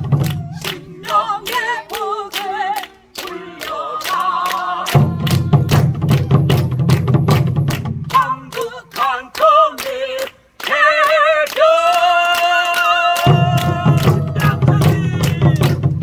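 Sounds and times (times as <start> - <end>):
drum strokes: 0.0 - 1.6, 4.9 - 8.2, 13.2 - 16.0
folk singing with vibrato: 0.0 - 7.0, 8.1 - 16.0.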